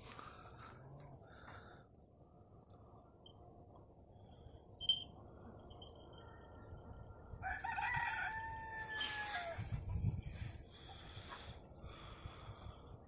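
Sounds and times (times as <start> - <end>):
rooster crowing: 7.4 - 9.7.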